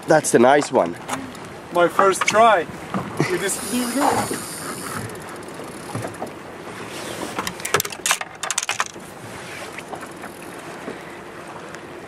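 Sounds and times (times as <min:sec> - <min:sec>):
river water rushing: 0:01.0 - 0:08.2
sharp clicks and knocks: 0:07.4 - 0:09.0.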